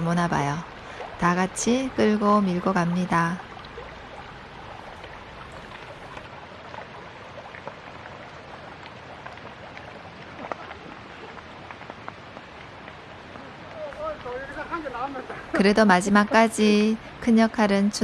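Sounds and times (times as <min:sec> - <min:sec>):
stream rushing: 0:00.0 - 0:18.0
light ticks and patters: 0:07.4 - 0:18.0.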